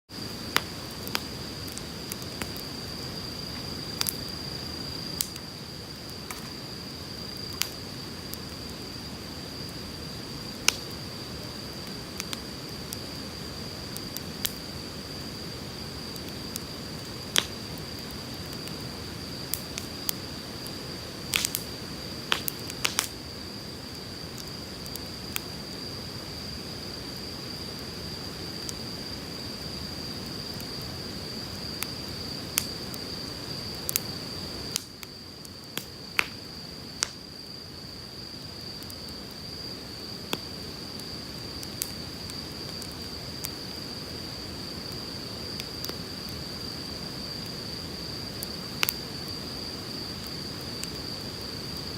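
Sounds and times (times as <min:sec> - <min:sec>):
wood fire crackling and popping: 0:00.2 - 0:37.3, 0:38.4 - 0:51.9.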